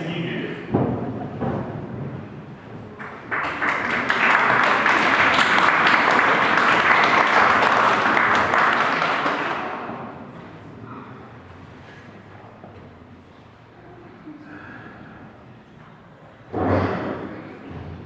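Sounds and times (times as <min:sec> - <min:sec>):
audience applauding: 0:03.0 - 0:10.2.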